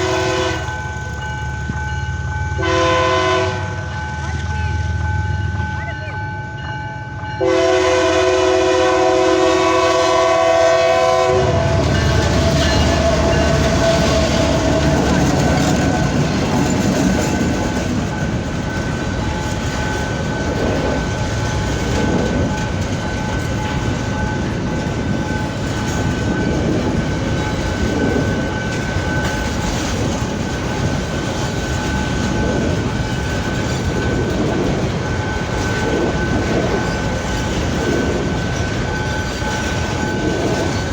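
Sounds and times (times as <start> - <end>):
locomotive air horn: 0.0 - 0.7, 2.6 - 3.7, 7.4 - 15.1
diesel locomotive rumble: 0.0 - 40.9
wheels clattering over rails: 11.6 - 40.9.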